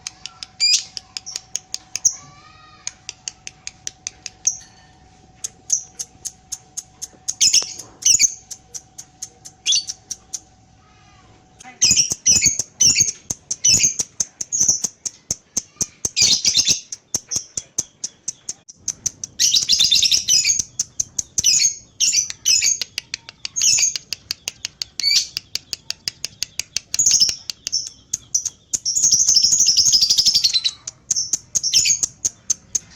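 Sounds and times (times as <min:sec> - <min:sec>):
lovebird chattering chirps: 0:05.4 - 0:10.5, 0:11.6 - 0:15.1, 0:16.0 - 0:32.9.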